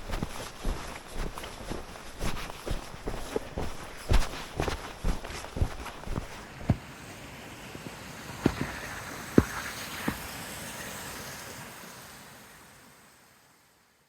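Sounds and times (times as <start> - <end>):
footsteps in snow: 0.0 - 6.8.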